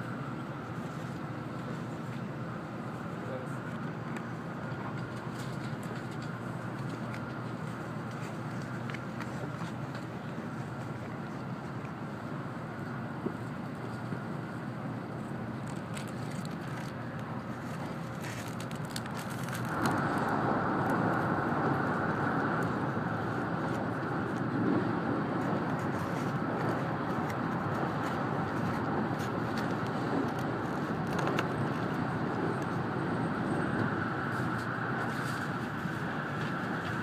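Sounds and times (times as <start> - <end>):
rushing air: 19.5 - 37.0.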